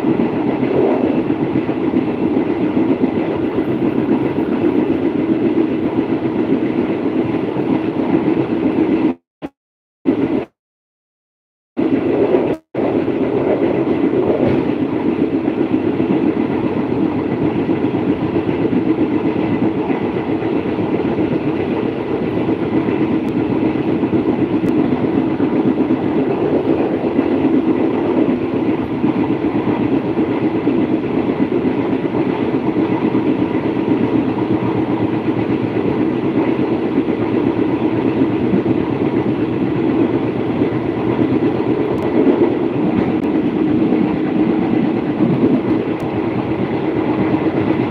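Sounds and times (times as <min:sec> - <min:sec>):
passenger train rumbling on track: 0:00.0 - 0:10.6, 0:11.8 - 0:47.9.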